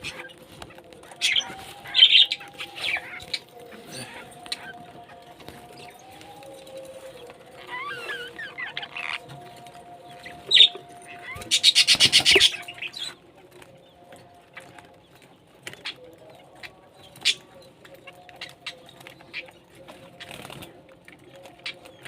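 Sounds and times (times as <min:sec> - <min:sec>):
parrots squawking: 0:01.0 - 0:06.1, 0:07.6 - 0:09.5, 0:10.4 - 0:13.2.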